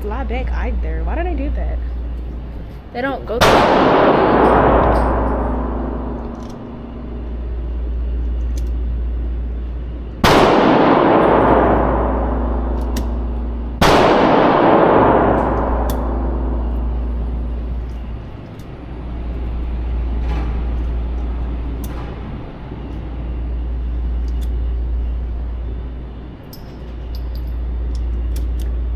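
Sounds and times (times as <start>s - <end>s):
steady low hum: 0.0s - 28.9s
pistol shots with echo: 3.4s - 6.3s, 10.2s - 17.5s.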